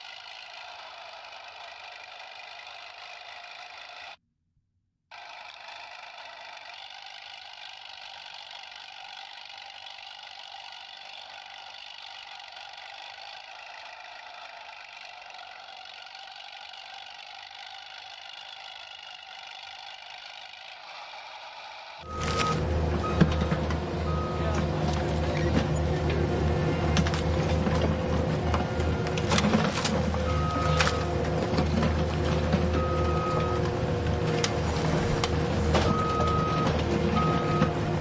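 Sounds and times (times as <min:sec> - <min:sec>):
engine running with tinny hum: 0:00.0 - 0:04.2, 0:05.1 - 0:38.0.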